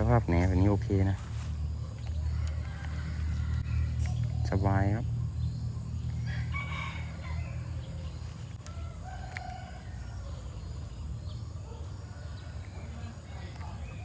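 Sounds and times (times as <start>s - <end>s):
steady low rumble: 0.0s - 14.0s
rooster crowing: 2.1s - 4.4s, 6.0s - 13.9s.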